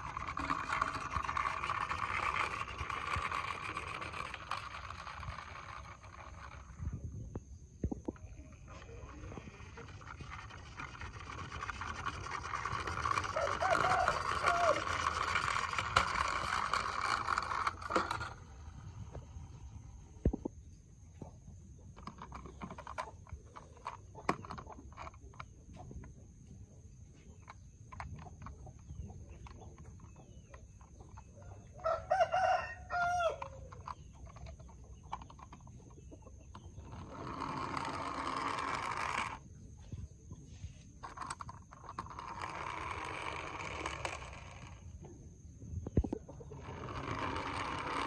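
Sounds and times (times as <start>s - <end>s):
rooster crowing: 13.3s - 15.0s, 31.7s - 33.7s.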